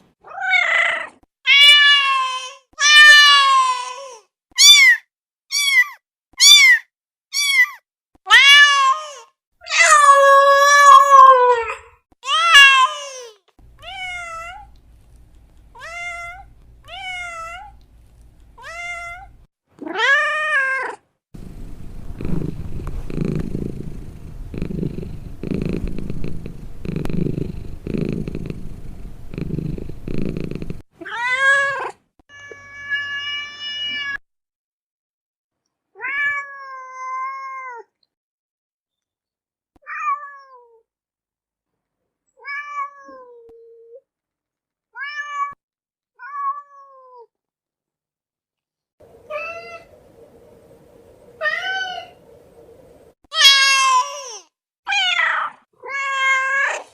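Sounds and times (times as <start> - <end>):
cat meowing: 13.8 - 14.7, 15.8 - 17.8, 18.6 - 21.0
cat purring: 21.4 - 30.8.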